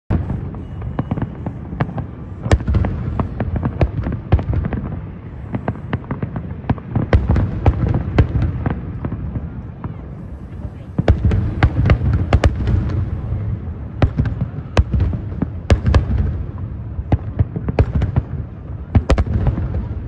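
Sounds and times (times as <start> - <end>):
fireworks cracks and bangs: 0.1 - 20.0
low rumble: 9.0 - 17.0.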